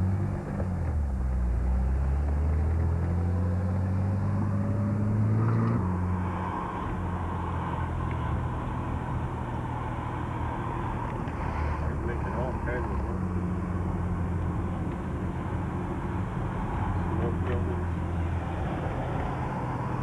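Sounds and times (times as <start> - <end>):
car engine: 0.0 - 20.0
road noise: 0.0 - 20.0.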